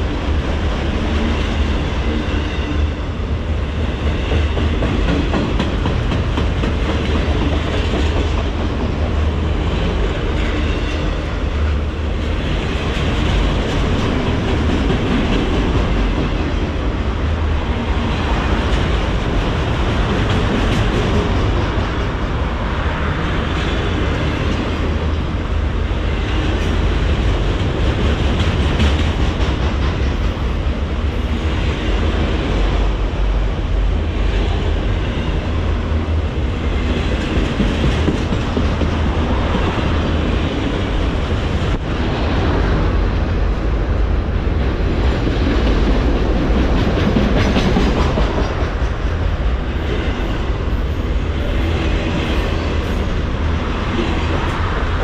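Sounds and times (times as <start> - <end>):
freight cars rumbling: 0.0 - 55.0
wheels clacking over rail joints: 3.9 - 11.1, 36.8 - 43.2.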